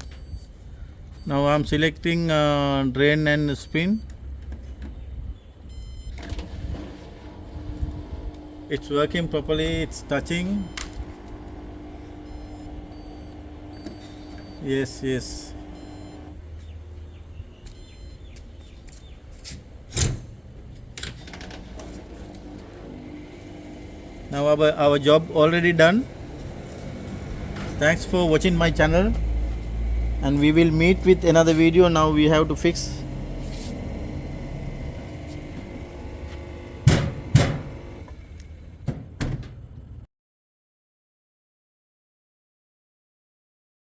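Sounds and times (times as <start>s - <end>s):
loud thump: 36.8s - 37.8s, 38.9s - 40.0s.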